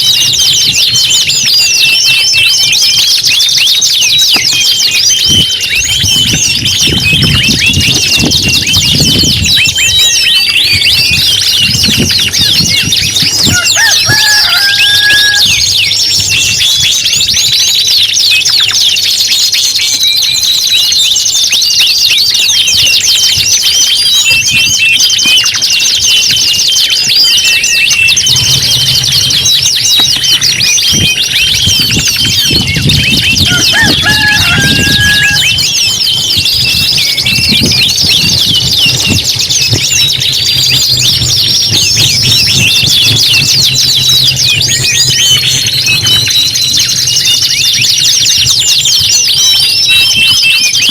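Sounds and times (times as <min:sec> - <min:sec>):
canaries singing trills: 0:00.0 - 0:50.9.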